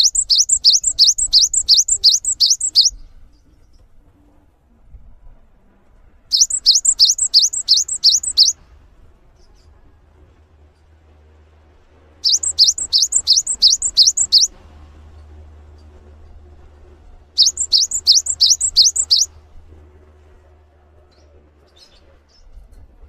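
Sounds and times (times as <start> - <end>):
songbird chirping: 0.0 - 3.8, 6.3 - 8.6, 12.2 - 14.5, 17.4 - 19.3.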